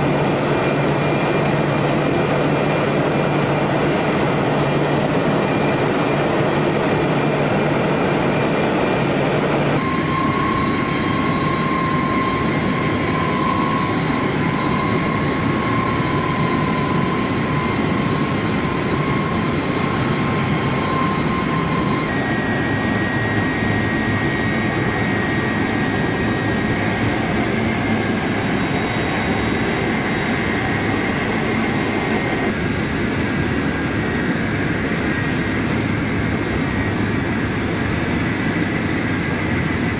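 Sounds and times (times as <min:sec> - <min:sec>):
high steady whine: 0:00.0 - 0:25.4
jet engines running: 0:00.0 - 0:39.9.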